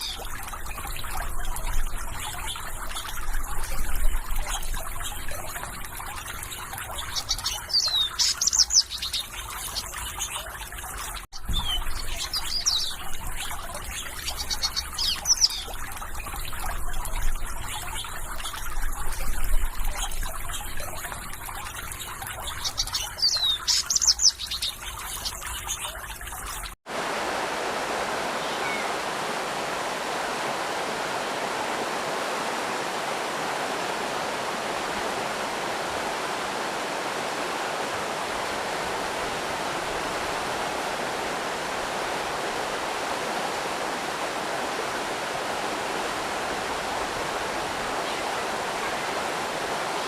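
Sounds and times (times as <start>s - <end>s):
small birds chirping: 0.0s - 26.7s, 28.3s - 29.0s
water trickling: 0.0s - 50.0s.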